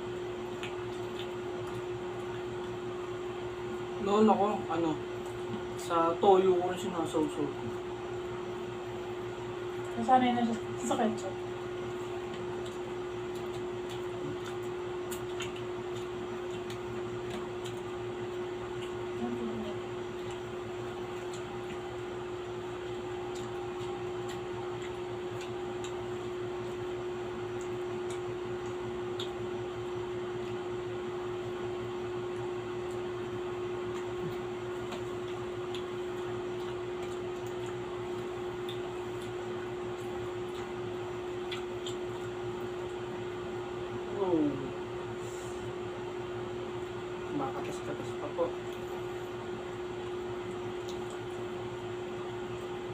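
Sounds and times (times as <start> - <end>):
room hum with steady tone: 0.0 - 52.9
eating mouth sounds: 11.8 - 22.0, 32.4 - 42.8.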